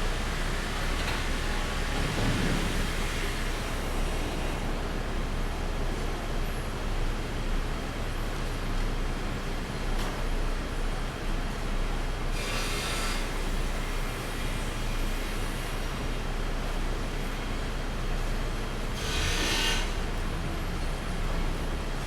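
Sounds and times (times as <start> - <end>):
sawmill machinery running: 0.0 - 5.8, 12.3 - 22.0.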